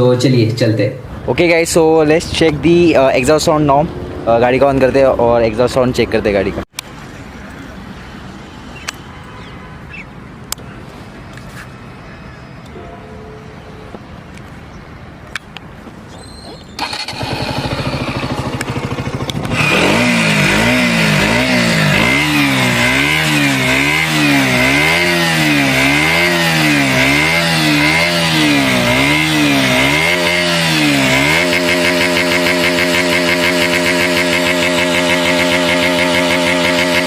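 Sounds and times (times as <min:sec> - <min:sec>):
motorcycle engine revving and idling: 0:16.8 - 0:37.0.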